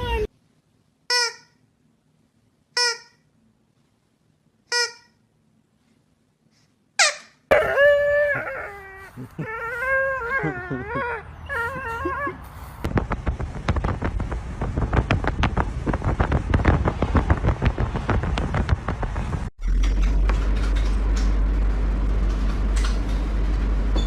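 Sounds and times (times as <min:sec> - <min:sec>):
dog crying high-pitched: 0:00.0 - 0:00.3, 0:07.0 - 0:12.5.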